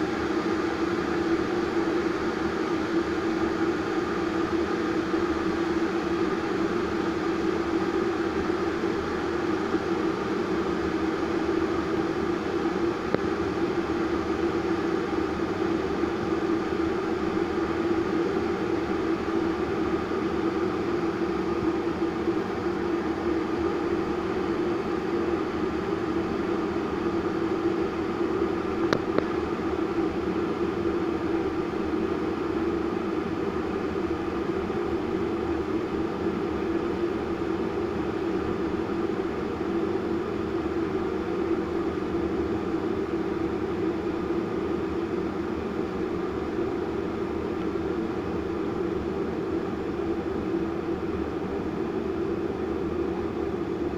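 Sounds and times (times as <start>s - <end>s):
kettle heating water: 0.0s - 53.9s.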